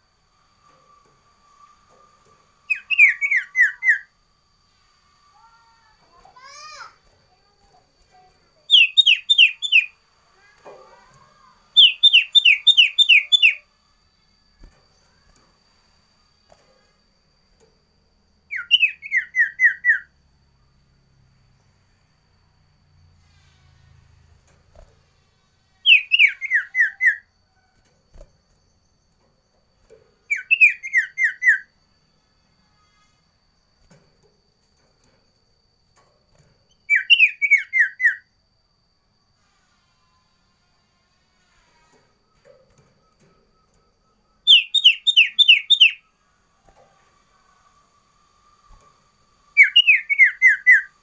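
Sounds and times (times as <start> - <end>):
songbird whistled notes: 0.9 - 4.1, 8.6 - 10.0, 11.6 - 13.8, 18.4 - 20.2, 25.8 - 27.7, 30.2 - 31.8, 36.7 - 38.3, 42.8 - 46.2, 48.4 - 51.0.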